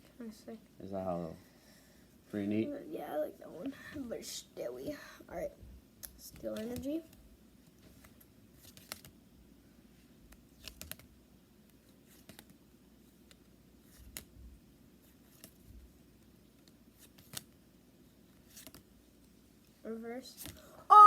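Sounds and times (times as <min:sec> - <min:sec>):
low room hum: 0:00.0 - 0:21.0
trading cards flicking: 0:08.0 - 0:09.1, 0:10.3 - 0:11.1, 0:17.0 - 0:17.5.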